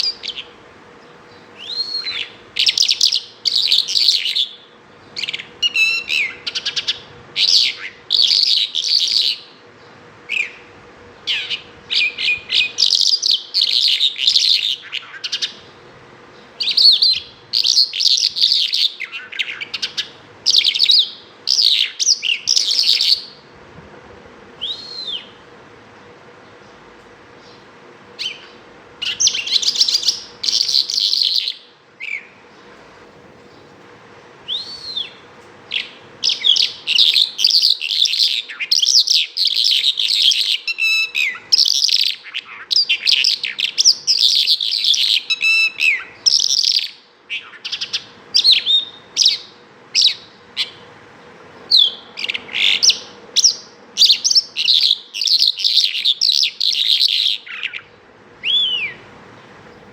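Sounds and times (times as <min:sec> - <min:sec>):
lark singing chirps and trills: 0:00.0 - 0:23.5, 0:24.6 - 0:25.4, 0:27.4 - 0:32.7, 0:34.4 - 0:59.9.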